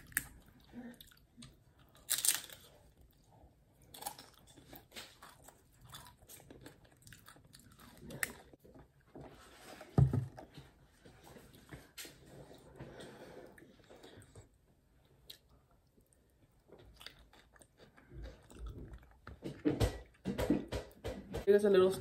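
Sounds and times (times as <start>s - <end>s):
crisp chips crunching: 1.9s - 2.8s.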